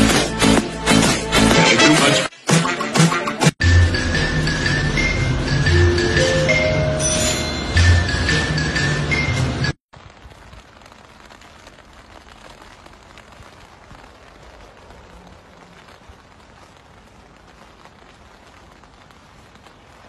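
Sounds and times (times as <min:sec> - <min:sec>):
faint crackles: 0:09.9 - 0:20.0.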